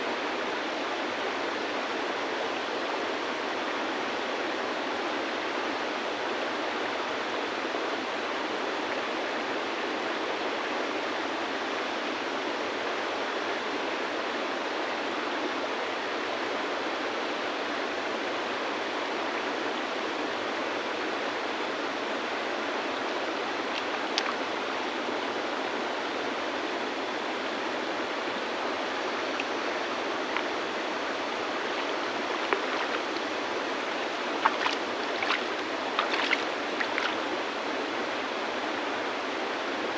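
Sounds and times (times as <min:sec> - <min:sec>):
river flowing over stones: 0:23.1 - 0:25.3, 0:26.3 - 0:38.1.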